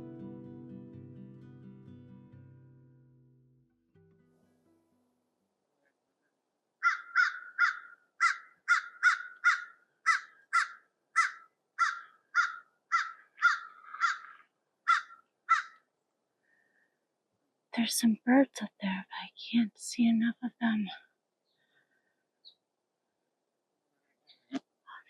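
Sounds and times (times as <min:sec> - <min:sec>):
bird calling: 0:06.8 - 0:15.8.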